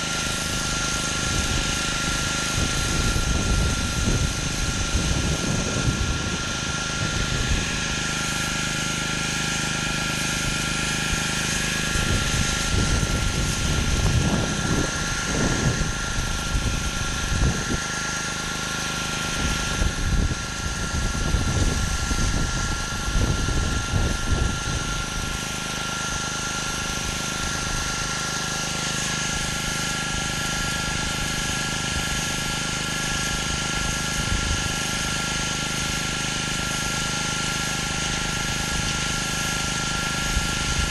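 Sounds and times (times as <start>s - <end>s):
pressure washer spraying: 0.0s - 40.9s.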